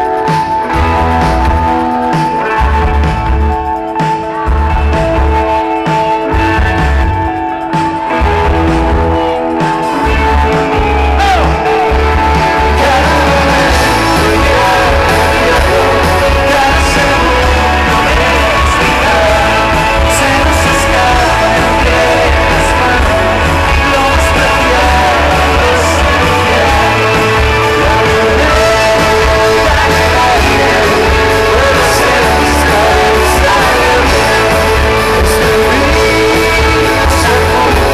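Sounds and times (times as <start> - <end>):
rock band playing loudly: 0.0 - 37.9
person singing: 8.9 - 37.9.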